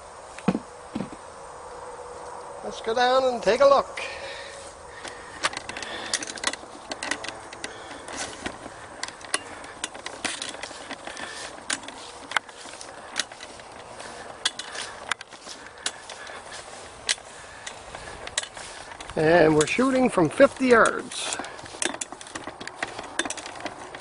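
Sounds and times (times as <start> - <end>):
faint outdoor background: 0.0 - 24.0
handling clicks and knocks: 4.9 - 24.0.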